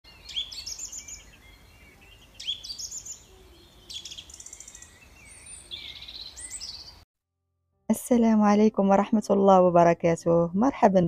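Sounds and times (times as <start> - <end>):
songbird chirping and trilling: 0.1 - 7.0.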